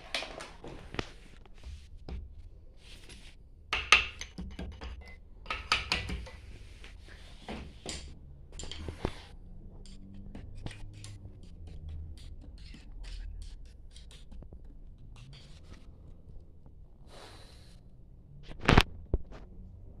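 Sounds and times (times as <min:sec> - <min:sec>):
metal tools clinking and knocking: 0:03.8 - 0:06.4.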